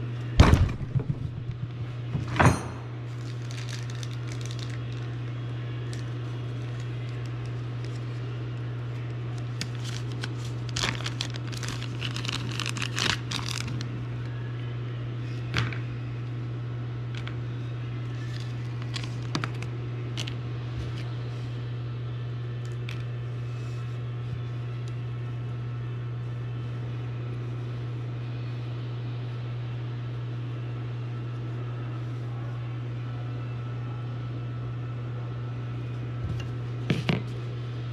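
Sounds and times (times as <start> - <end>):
steady low hum: 0.0 - 37.9
crinkling and clicking handling: 3.1 - 14.3, 18.2 - 20.4.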